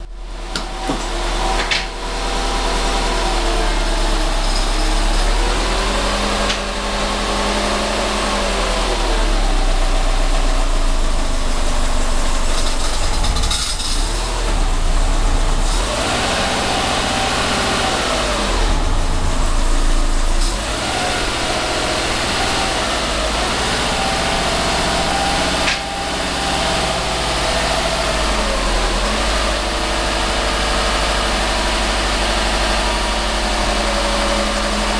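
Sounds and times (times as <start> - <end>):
car engine at low revs: 0.0 - 34.9
clutch clicking and grinding: 12.4 - 14.2.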